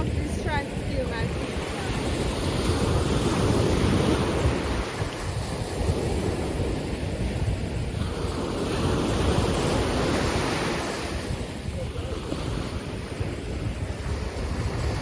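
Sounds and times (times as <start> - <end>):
ocean surf washing in: 0.0 - 15.0
wind buffeting microphone: 0.0 - 15.0.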